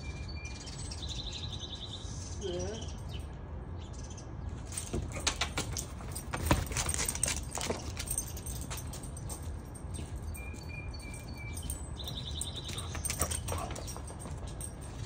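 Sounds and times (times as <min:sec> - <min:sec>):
songbird chirps and trill: 0:00.0 - 0:04.4, 0:09.9 - 0:14.0.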